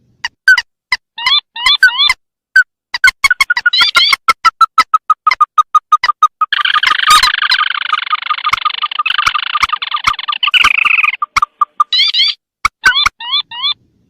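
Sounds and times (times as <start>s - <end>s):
rail bird calls: 3.0s - 13.8s.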